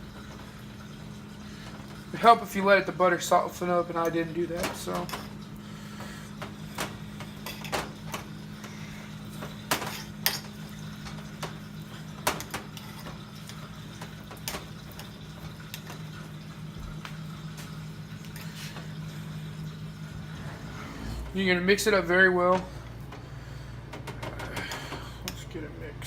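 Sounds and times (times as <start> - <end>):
low hum: 15.8 - 25.2.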